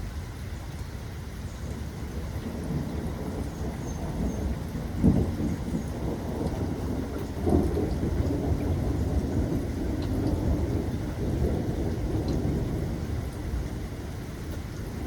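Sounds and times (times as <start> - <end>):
rain falling: 0.0 - 15.0
thunder rolling: 4.0 - 13.8.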